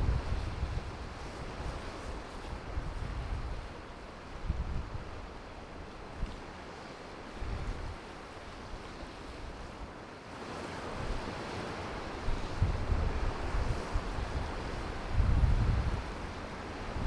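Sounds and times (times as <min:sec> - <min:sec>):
wind buffeting microphone: 0:00.0 - 0:03.7, 0:12.0 - 0:17.0.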